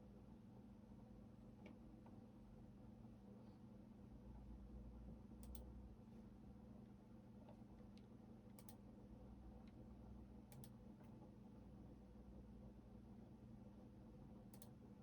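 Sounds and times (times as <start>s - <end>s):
computer keys clicking: 5.4s - 5.7s, 8.6s - 8.8s, 10.5s - 10.8s, 14.5s - 14.8s.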